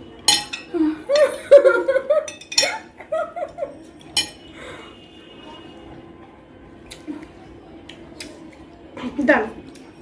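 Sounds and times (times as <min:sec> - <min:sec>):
metal spoon clinking on dish: 0:00.2 - 0:01.3, 0:02.2 - 0:02.9, 0:04.0 - 0:04.5.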